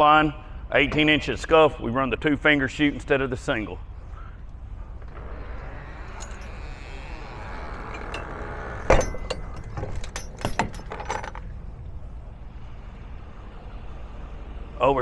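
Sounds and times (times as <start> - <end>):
metallic clinks and knocks: 6.0 - 6.8, 7.8 - 11.6.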